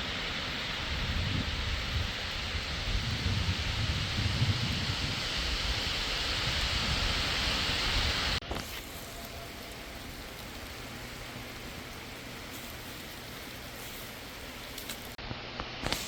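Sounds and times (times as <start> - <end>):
rain hissing: 0.0 - 15.2
wind rumbling on microphone: 0.0 - 15.2
power line hum: 0.0 - 16.0.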